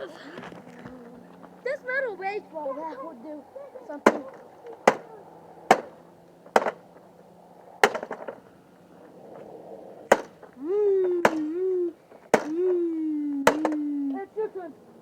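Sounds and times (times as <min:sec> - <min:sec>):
wavering howl-like calls: 0:00.0 - 0:06.2, 0:08.4 - 0:15.0
strikes on vacuum cleaner: 0:13.5 - 0:13.8.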